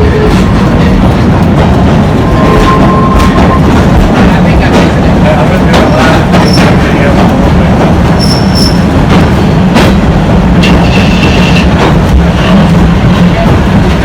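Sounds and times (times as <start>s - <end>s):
train cars rumbling on track: 0.0s - 14.0s
train clanks: 0.0s - 14.0s
wheels squealing: 8.2s - 8.9s.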